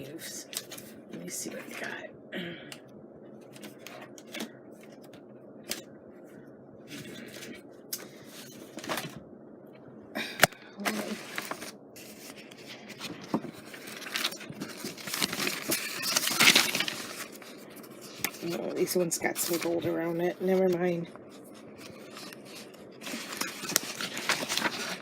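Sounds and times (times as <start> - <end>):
paper rustling and scraping: 6.9 - 9.2, 10.8 - 25.0
crinkling rustles: 10.8 - 25.0.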